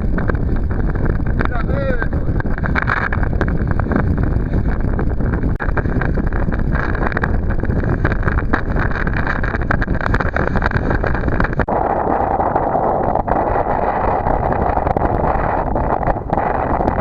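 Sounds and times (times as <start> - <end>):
outboard motor running: 0.0 - 17.0
wind buffeting microphone: 0.0 - 17.0.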